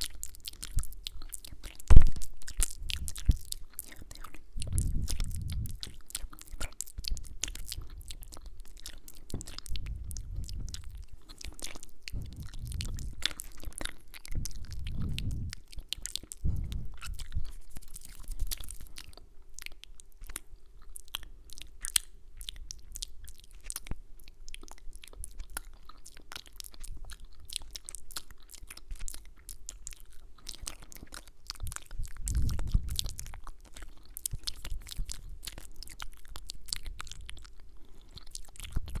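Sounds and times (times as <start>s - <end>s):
wet mouth clicks and lip smacks: 0.0s - 39.0s
soft low thuds: 1.8s - 3.4s, 9.3s - 11.1s, 12.0s - 13.3s.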